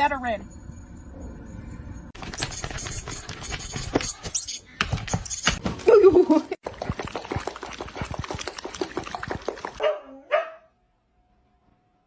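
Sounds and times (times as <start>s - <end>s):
dog barking: 9.8s - 10.7s.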